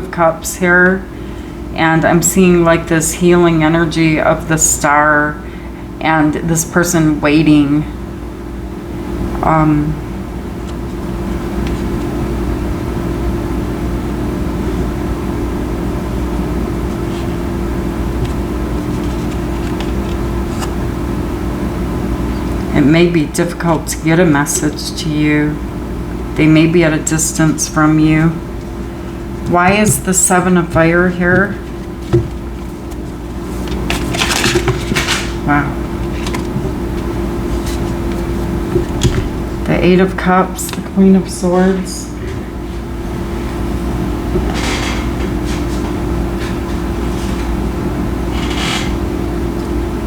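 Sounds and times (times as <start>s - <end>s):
machine hum with held tone: 0.0s - 50.0s
cards shuffling: 18.2s - 20.8s.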